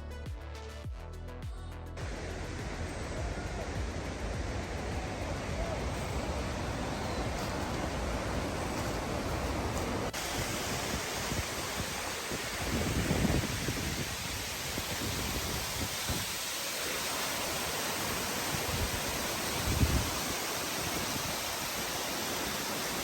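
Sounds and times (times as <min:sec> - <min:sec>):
low rumble: 0:02.0 - 0:10.2
waterfall roaring: 0:02.0 - 0:23.0.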